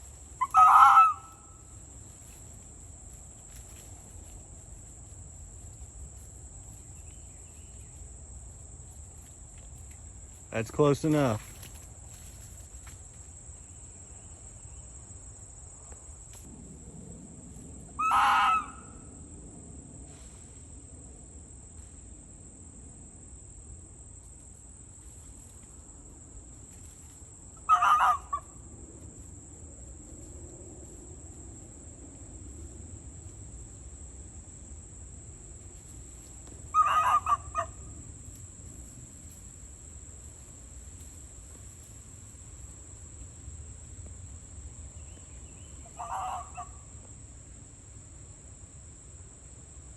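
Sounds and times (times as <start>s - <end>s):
fox barking: 0.4s - 1.6s, 18.0s - 19.0s, 27.6s - 28.5s, 36.7s - 37.8s, 45.9s - 46.8s.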